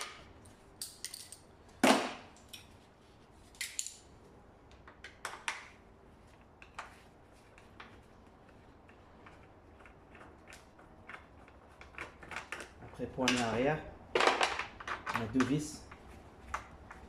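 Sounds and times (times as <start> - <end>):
clicks and clinks of tools: 0.8 - 1.4.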